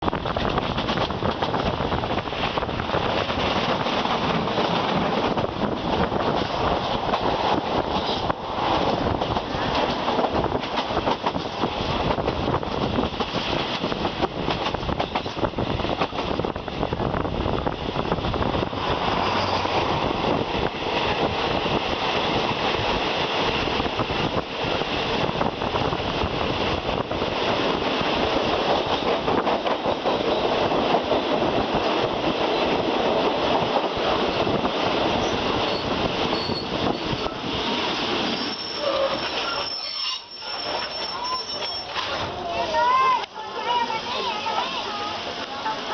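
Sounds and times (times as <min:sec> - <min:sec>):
train wheels clattering over rail joints: 0:00.0 - 0:16.6, 0:18.3 - 0:39.7
high wheel squeal: 0:19.2 - 0:19.8, 0:35.2 - 0:37.4, 0:38.3 - 0:42.2.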